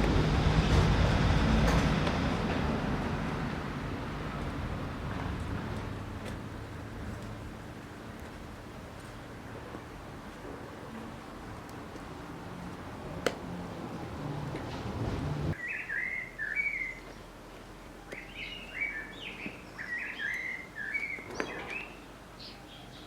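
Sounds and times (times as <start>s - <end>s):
low hum: 0.0s - 15.6s
small bird twittering: 15.6s - 17.2s, 18.0s - 23.0s.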